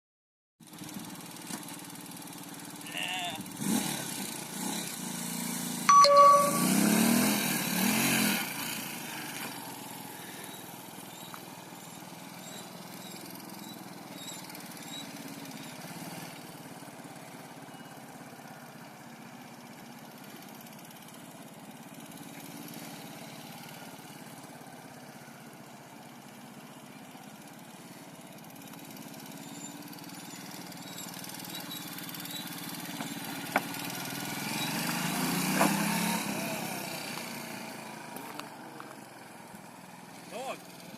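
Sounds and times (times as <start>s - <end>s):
short beep: 5.9s - 7.3s
motorcycle engine running: 8.7s - 40.9s.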